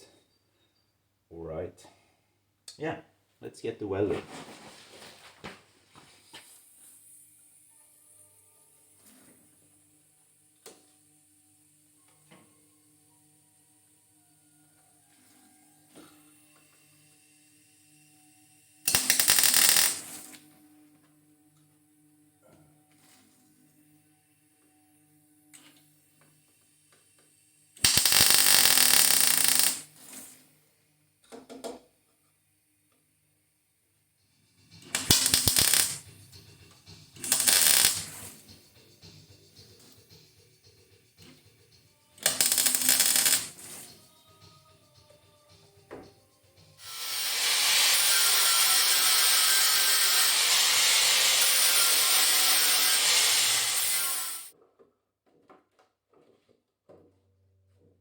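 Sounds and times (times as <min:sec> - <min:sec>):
angle grinder grinding sheet metal: 0:18.9 - 0:20.4, 0:27.9 - 0:29.9, 0:34.8 - 0:36.1, 0:37.2 - 0:38.4, 0:42.2 - 0:44.0, 0:46.8 - 0:54.5
welding arc crackling: 0:18.9 - 0:20.4, 0:27.8 - 0:30.3, 0:34.8 - 0:36.1, 0:37.2 - 0:38.4, 0:42.2 - 0:43.9, 0:46.8 - 0:54.5.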